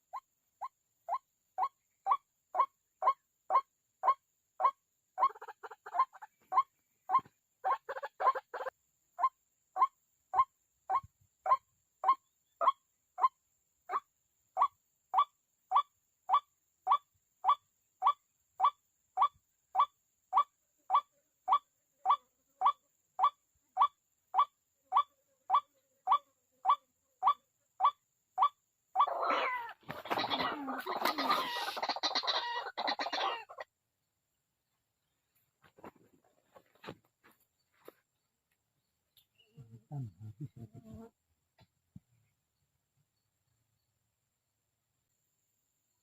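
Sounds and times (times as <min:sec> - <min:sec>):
harsh squawking bird calls: 0:29.0 - 0:33.6.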